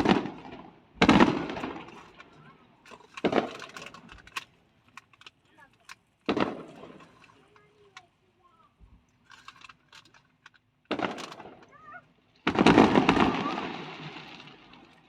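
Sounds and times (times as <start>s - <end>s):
fireworks bursting: 0.0s - 2.2s, 6.3s - 7.0s, 10.9s - 11.8s, 12.4s - 15.0s
fireworks crackling: 0.0s - 2.2s, 6.3s - 7.9s, 10.9s - 15.0s.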